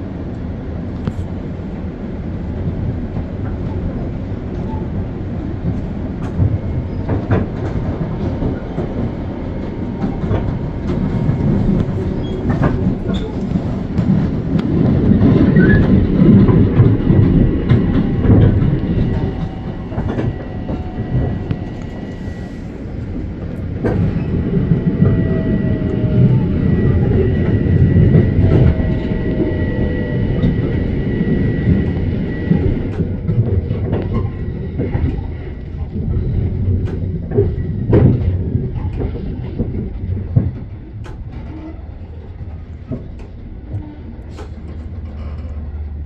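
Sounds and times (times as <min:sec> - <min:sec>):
train wheels rumbling on rail: 0:00.0 - 0:46.0
wheels clacking over rail joints: 0:05.7 - 0:22.3.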